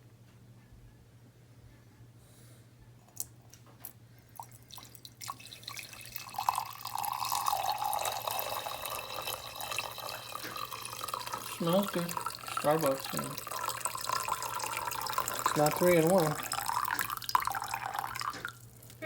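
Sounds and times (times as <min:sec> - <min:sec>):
liquid pouring into a cup: 0:04.3 - 0:19.0
cups and gear clicking: 0:04.4 - 0:19.0.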